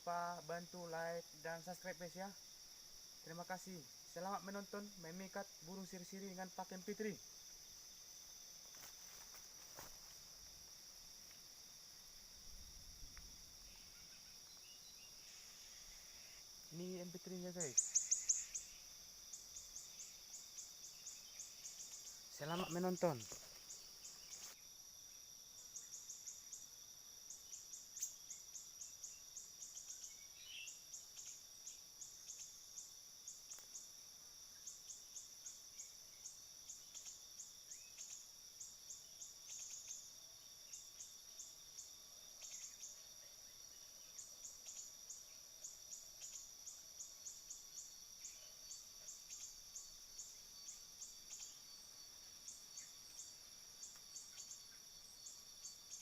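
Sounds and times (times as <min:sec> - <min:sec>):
high insect drone: 0:00.0 - 0:56.0
recorded bird call chirps: 0:13.6 - 0:24.6, 0:27.3 - 0:33.8, 0:34.6 - 0:56.0.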